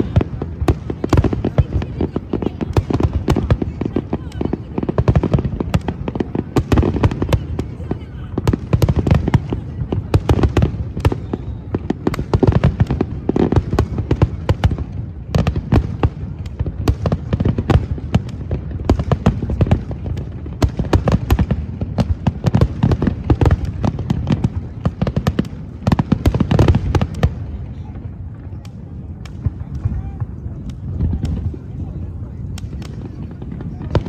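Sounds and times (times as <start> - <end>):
fireworks bangs and crackles: 0.0 - 34.0
continuous low rumble: 11.8 - 34.0.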